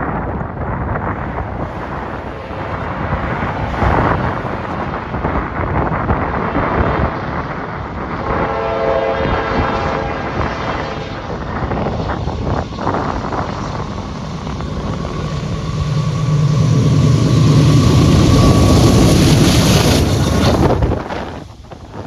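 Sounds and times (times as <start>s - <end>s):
freight train wheels rumbling on rail: 0.0s - 22.0s
wind on microphone: 0.0s - 22.0s
thin steady squeal: 1.1s - 7.4s, 11.6s - 21.6s.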